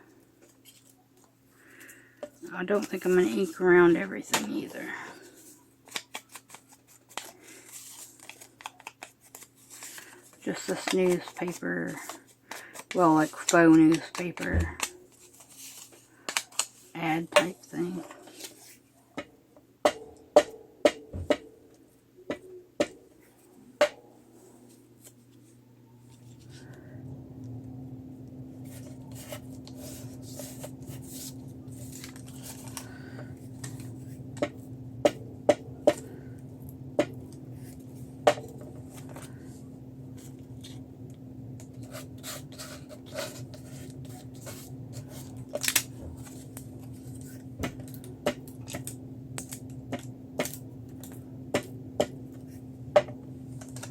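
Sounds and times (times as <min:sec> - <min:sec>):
steady low hum: 0:20.2 - 0:53.9.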